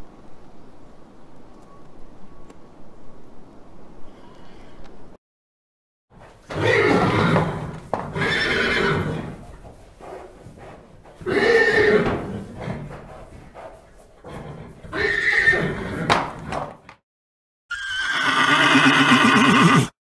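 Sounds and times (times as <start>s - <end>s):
horse neighing: 6.4s - 9.4s, 11.2s - 13.0s, 14.2s - 16.5s, 17.7s - 20.0s.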